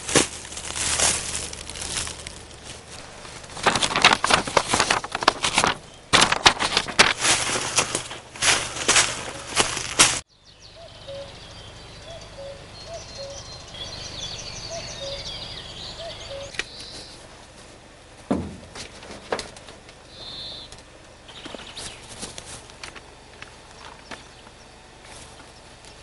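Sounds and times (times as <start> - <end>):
high bird chirping: 8.6 - 17.3, 20.1 - 20.7
loud thump: 18.3 - 18.8
sharp knocks: 18.3 - 18.9.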